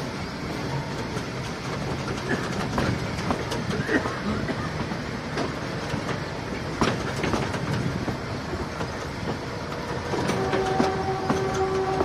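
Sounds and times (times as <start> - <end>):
train rumbling: 0.0 - 12.0
wheels clacking over rail joints: 0.5 - 12.0
train horn: 9.7 - 12.0.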